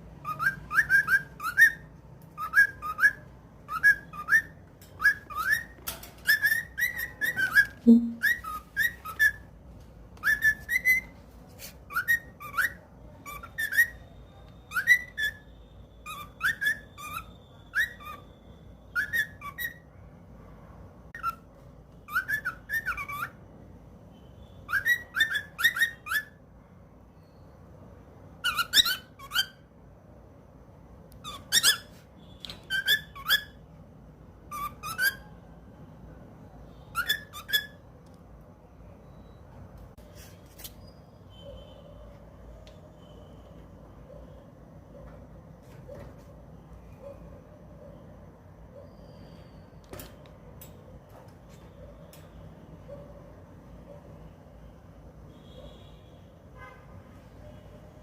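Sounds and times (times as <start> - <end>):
pet bird chirping: 0.0 - 9.5, 10.2 - 19.9, 21.2 - 23.4, 24.2 - 26.4, 28.4 - 29.8, 31.1 - 33.8, 34.4 - 35.4, 36.6 - 38.0.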